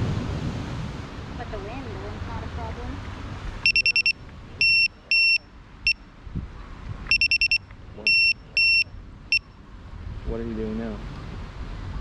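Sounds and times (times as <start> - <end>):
electronic beeper alarm: 3.6 - 6.0, 7.1 - 9.5.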